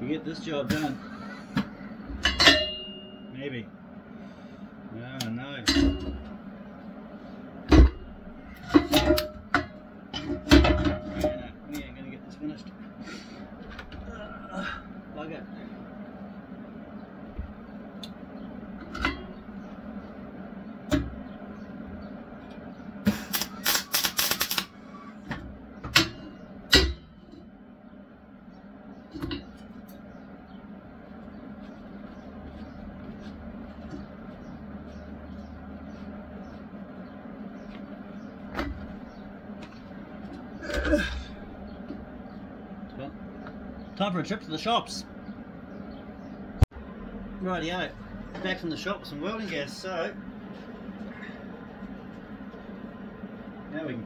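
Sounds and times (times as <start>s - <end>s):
sharp clicks and crackles: 23.2s - 24.7s.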